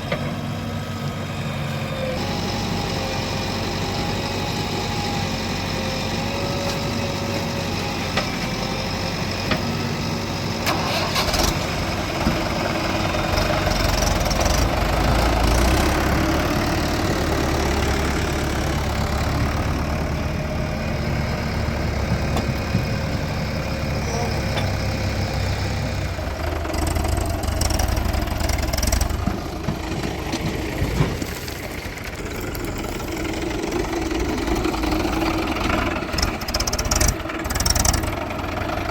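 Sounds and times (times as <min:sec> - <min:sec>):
diesel engines under load: 0:00.0 - 0:38.9.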